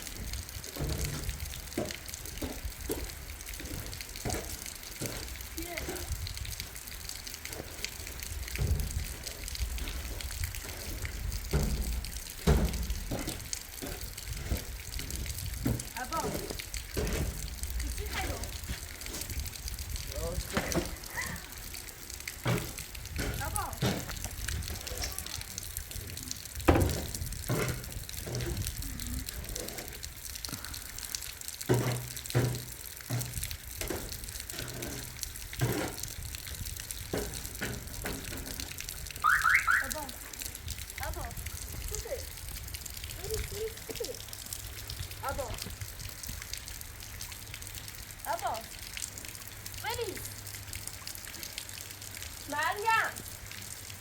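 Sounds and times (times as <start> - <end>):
loud splashes or knocks: 0.0 - 6.8, 7.4 - 25.0, 25.9 - 30.6, 31.6 - 40.6
heavy rain: 0.0 - 54.0
running water: 0.0 - 54.0
dull thumps: 11.4 - 17.6.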